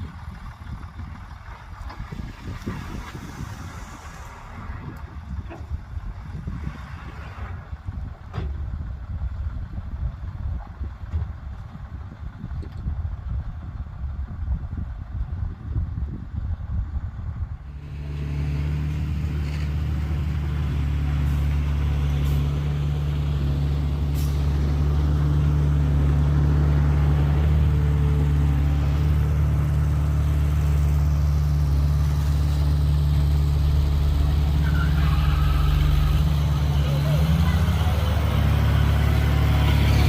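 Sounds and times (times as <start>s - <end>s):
vehicle engine droning: 0.0s - 40.0s.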